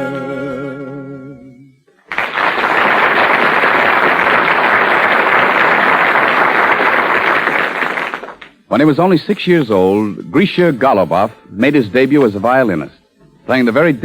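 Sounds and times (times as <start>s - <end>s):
audience applauding: 2.1s - 8.6s.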